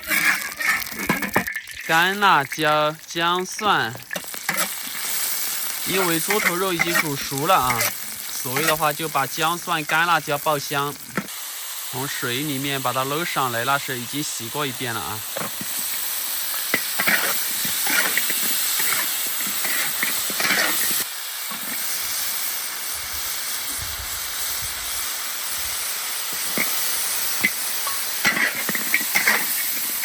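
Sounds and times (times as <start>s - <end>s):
hot oil sizzling in wok: 0.0s - 30.0s.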